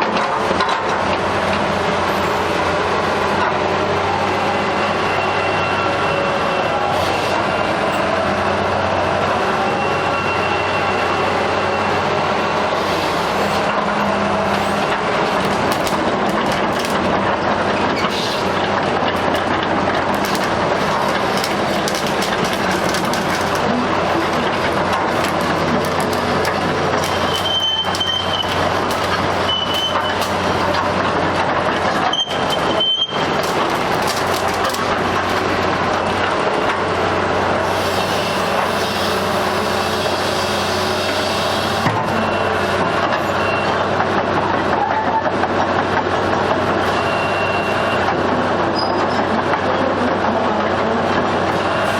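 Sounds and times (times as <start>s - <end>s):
excavator diesel engine drone: 0.0s - 51.9s.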